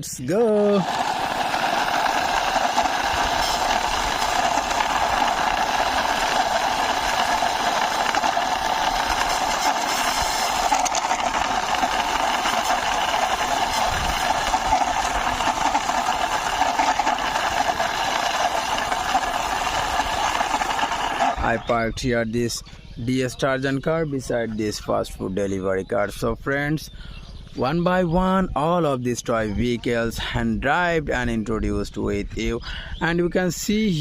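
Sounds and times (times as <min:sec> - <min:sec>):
toy car wheels rolling: 0:00.5 - 0:21.8.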